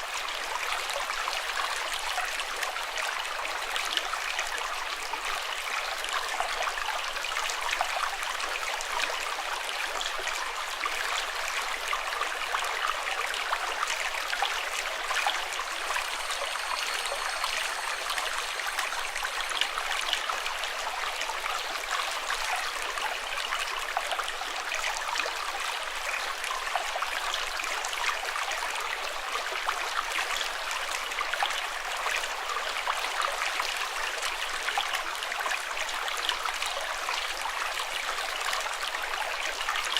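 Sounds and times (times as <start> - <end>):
running water flowing: 10.6 - 26.8.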